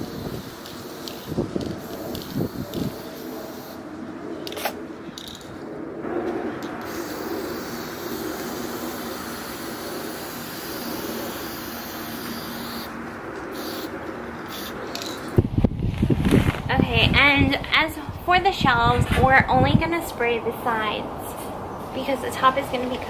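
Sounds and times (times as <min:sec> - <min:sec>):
aerosol spray can hissing: 0:00.0 - 0:03.8, 0:06.7 - 0:12.9, 0:13.5 - 0:13.9, 0:14.5 - 0:15.2.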